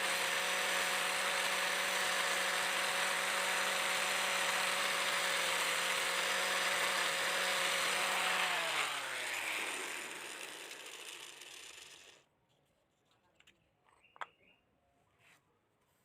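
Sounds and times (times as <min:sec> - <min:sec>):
power tool motor running: 0:00.0 - 0:12.2.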